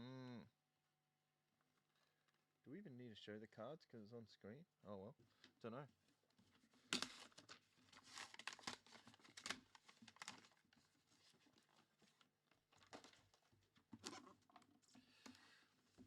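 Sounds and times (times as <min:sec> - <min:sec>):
packaging tearing and crinkling: 0:06.9 - 0:11.7.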